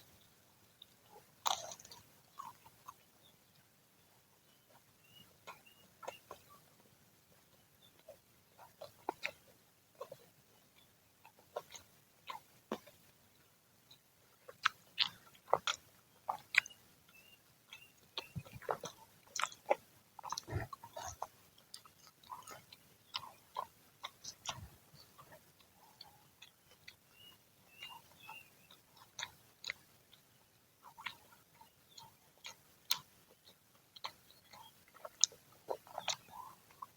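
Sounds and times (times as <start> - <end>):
chewing crunchy fried fritters: 0.0 - 36.9
mouth clicks: 14.5 - 29.9, 34.0 - 36.9.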